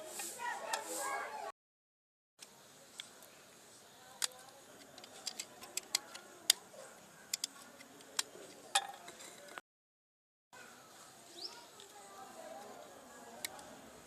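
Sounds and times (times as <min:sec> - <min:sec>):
small hard parts clicking: 0:04.2 - 0:06.6.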